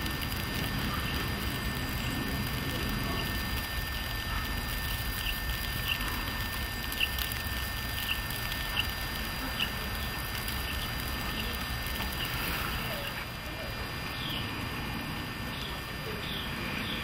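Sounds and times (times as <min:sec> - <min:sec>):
small bird chip calls: 0:04.3 - 0:13.2, 0:14.1 - 0:14.5.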